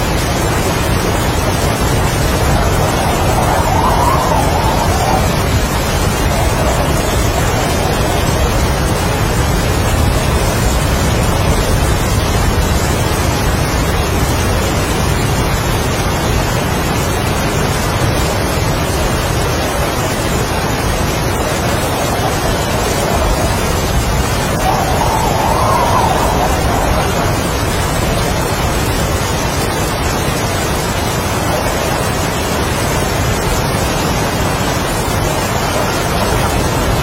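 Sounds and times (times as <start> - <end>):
deep rumble: 0.0 - 16.4, 19.8 - 29.3
heavy rain: 0.0 - 37.0
strong wind: 0.0 - 37.0.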